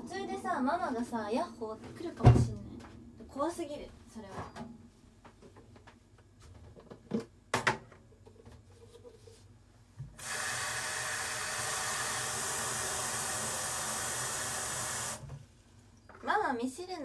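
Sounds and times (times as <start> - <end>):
tap water running into sink: 10.2 - 15.3.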